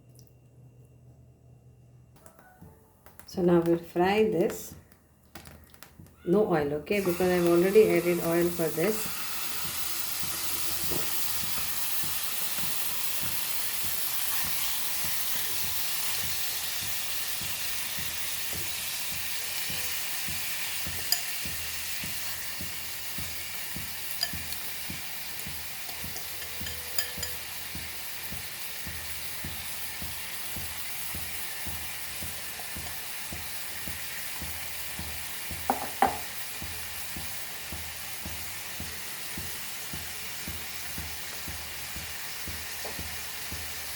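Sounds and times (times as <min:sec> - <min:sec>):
chicken sizzling in a pan: 0:06.9 - 0:43.9.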